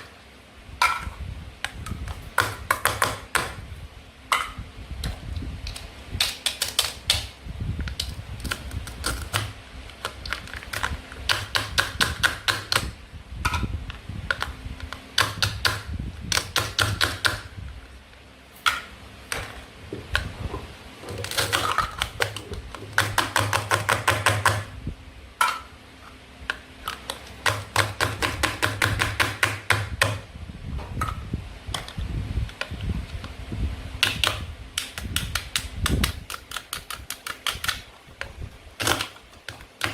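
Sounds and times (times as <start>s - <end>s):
sharp plastic clicks and taps: 34.0s - 37.8s.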